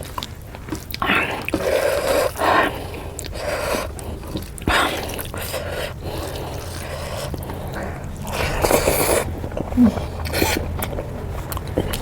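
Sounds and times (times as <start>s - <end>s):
wet chewing and squishing: 0.0s - 12.0s.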